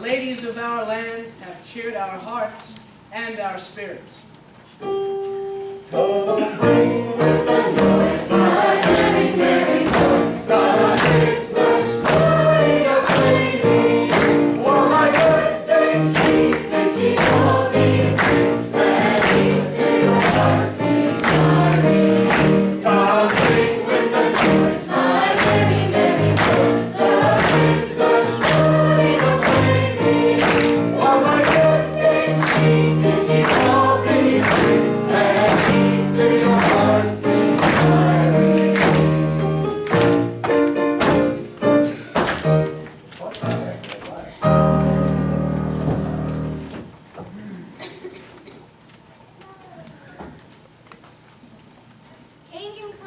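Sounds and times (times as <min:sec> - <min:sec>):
gospel choir singing: 0:05.9 - 0:41.9, 0:44.4 - 0:46.8.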